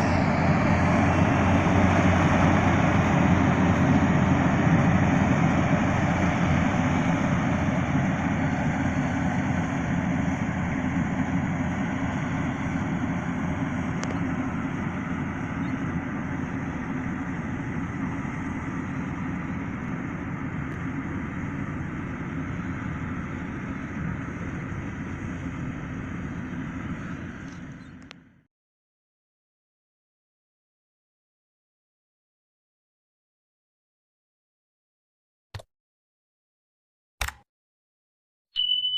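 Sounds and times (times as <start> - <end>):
combine harvester running: 0.0 - 28.4.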